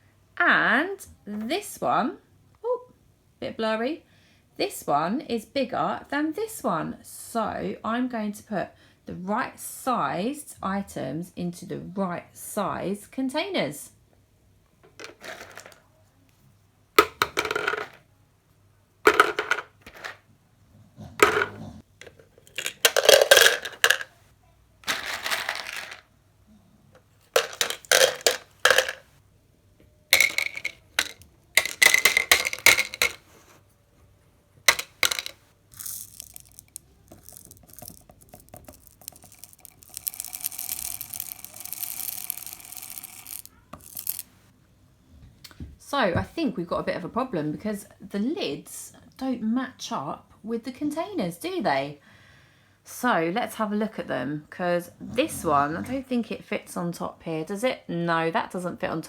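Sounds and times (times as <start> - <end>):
beads and pasta clattering: 14.9 - 15.8, 19.1 - 20.2, 21.2 - 24.2, 24.8 - 26.0, 27.3 - 29.1, 30.1 - 33.4, 34.7 - 44.4.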